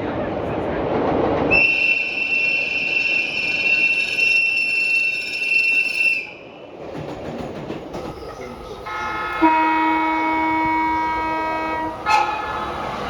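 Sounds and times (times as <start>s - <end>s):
train rumble: 0.0s - 13.0s
train horn blast: 8.9s - 13.0s.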